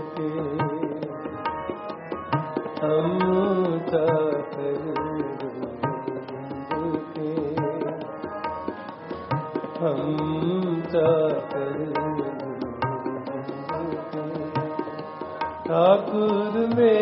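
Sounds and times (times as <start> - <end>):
tabla playing steady beat: 0.0 - 17.0
person singing: 2.8 - 8.1, 9.7 - 15.0, 15.7 - 17.0.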